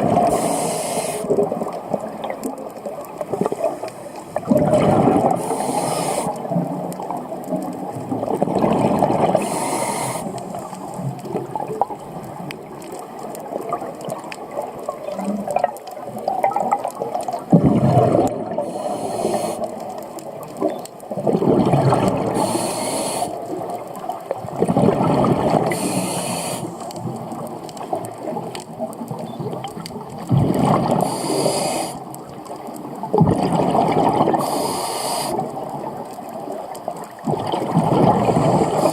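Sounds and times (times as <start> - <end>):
rush of bubbles: 0.0 - 38.9
regulator hiss on inhale: 0.2 - 1.4, 3.4 - 4.5, 5.4 - 6.6, 9.4 - 11.0, 18.6 - 19.8, 22.3 - 23.6, 25.7 - 27.0, 31.0 - 32.2, 34.4 - 35.6.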